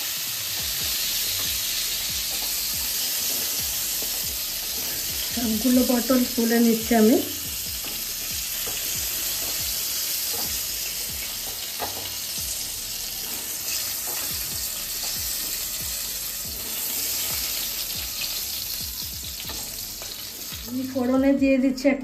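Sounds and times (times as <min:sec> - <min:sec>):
vegetables sizzling in hot oil: 0:00.0 - 0:22.0
spatula clicking and scraping pan: 0:07.8 - 0:12.3, 0:13.2 - 0:15.8, 0:19.4 - 0:20.7.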